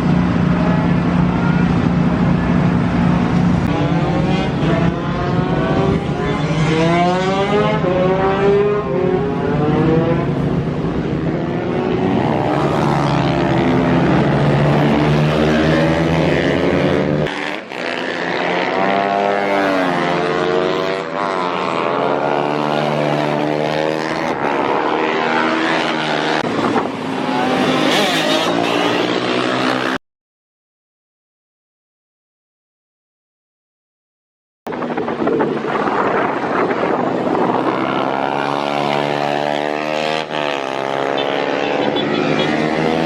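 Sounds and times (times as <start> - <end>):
motorbike engine revving: 0.2 - 30.0, 35.5 - 43.0.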